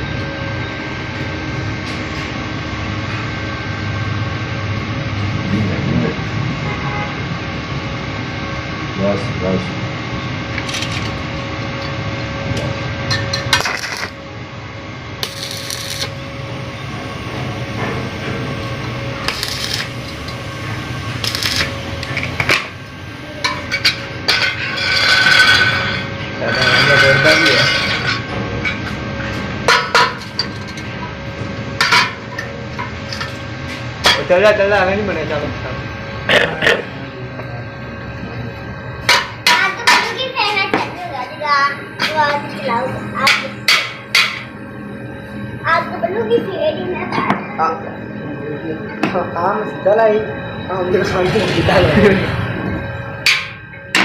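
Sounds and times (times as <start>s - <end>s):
machine engine drone: 0.0s - 54.0s
steady low hum: 0.0s - 54.0s.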